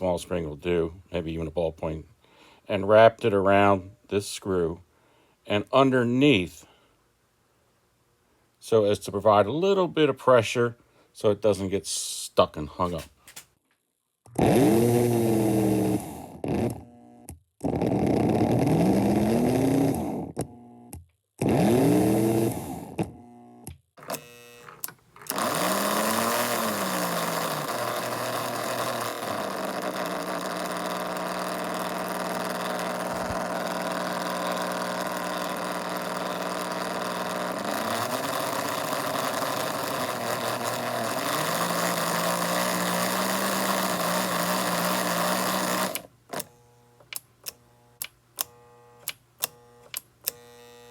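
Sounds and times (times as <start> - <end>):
toy train motor whirring: 14.4 - 16.8, 17.6 - 20.4, 21.4 - 23.2, 24.0 - 50.9.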